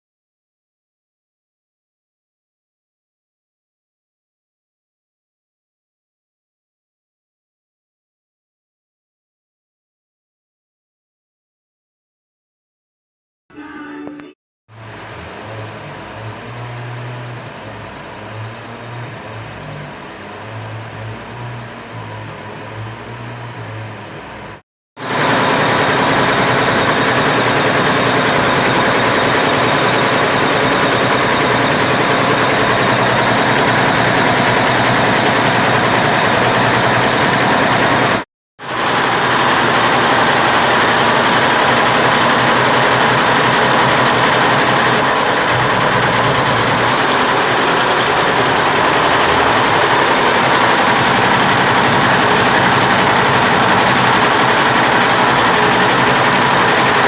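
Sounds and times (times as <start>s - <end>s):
embroidery machine stitching: 25.0s - 57.0s.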